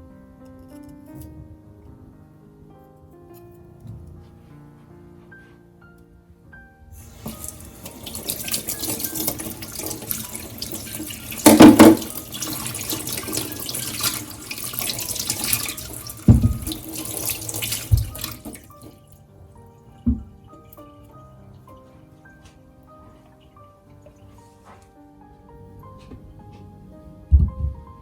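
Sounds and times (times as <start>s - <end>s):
tap water running into sink: 7.0s - 19.2s, 20.0s - 21.2s
short knocks: 16.2s - 17.0s.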